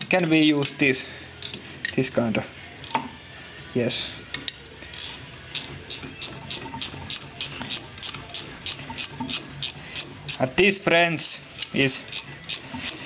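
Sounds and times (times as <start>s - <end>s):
ratcheting wrench clicking: 2.8s - 3.1s, 4.4s - 10.5s, 11.5s - 13.0s.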